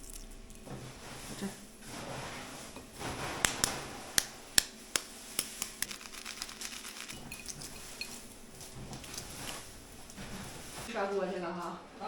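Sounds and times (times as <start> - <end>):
eggshells cracking: 4.2 - 7.6.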